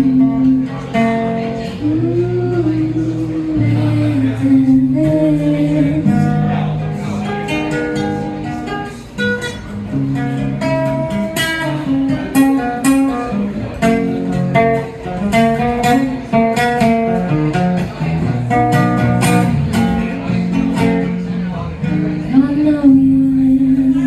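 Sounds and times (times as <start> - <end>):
acoustic guitar playing: 0.0 - 24.0.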